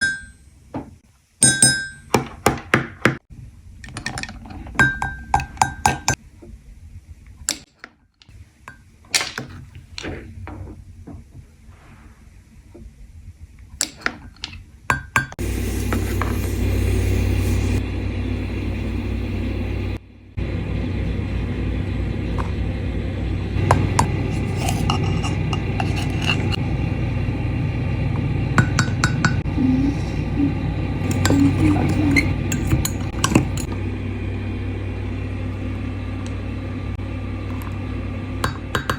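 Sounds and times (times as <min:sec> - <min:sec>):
spoon clinking against ceramic mug: 0:01.4 - 0:02.1, 0:23.7 - 0:26.6, 0:31.1 - 0:33.7
steady low hum: 0:03.3 - 0:07.6, 0:09.6 - 0:38.9.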